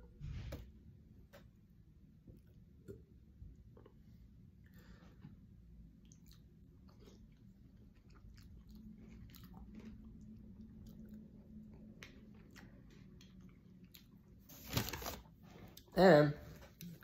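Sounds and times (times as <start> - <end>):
chewing food: 4.7 - 14.5.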